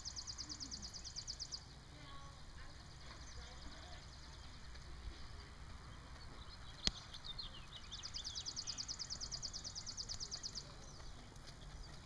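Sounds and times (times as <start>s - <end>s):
high bird chirps: 0.0s - 1.7s, 6.0s - 12.0s
songbird trill: 0.0s - 12.0s.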